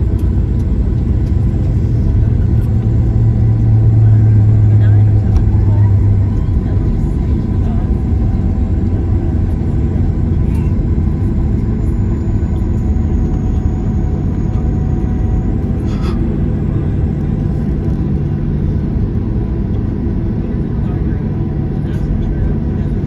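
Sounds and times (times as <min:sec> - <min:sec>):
airplane cabin rumble: 0:00.0 - 0:23.0
faint jet engine whine: 0:00.0 - 0:23.0
low road noise: 0:00.0 - 0:23.0.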